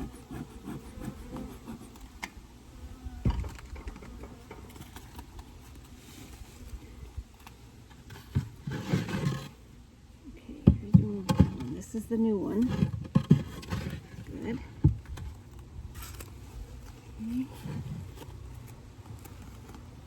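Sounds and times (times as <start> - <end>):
wooden frames knocking and scraping: 3.2 - 5.2, 12.5 - 15.4.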